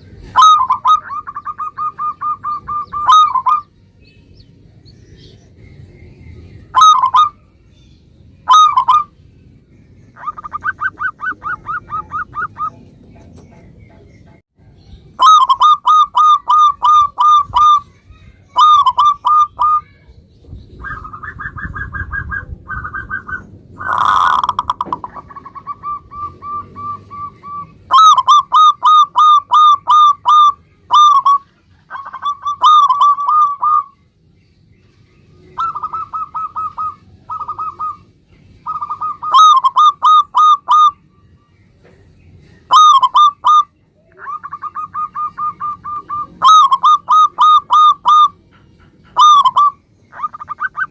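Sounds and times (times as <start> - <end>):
dove cooing: 0.0 - 3.7, 6.7 - 7.4, 8.5 - 9.1, 10.2 - 14.1, 15.2 - 17.9, 18.5 - 20.0, 20.8 - 34.0, 35.4 - 41.0, 42.7 - 50.9.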